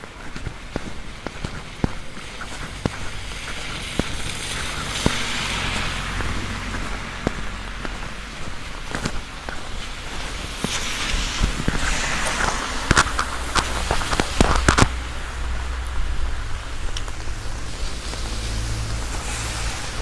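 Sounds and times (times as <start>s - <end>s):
big raindrops tapping: 0.0s - 20.0s
heavy rain on umbrella: 0.0s - 20.0s.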